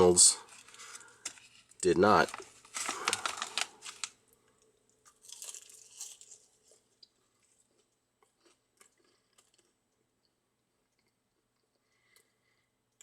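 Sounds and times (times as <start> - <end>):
person chewing crunchy food: 5.0 - 10.0.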